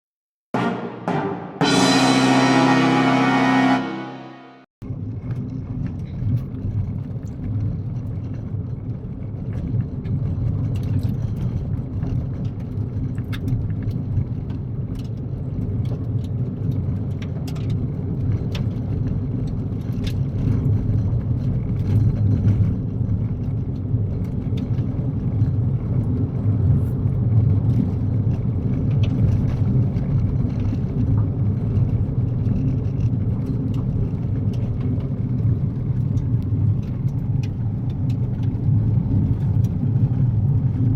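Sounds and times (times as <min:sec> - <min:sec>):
tyres rumbling on gravel road: 0:04.9 - 0:40.9.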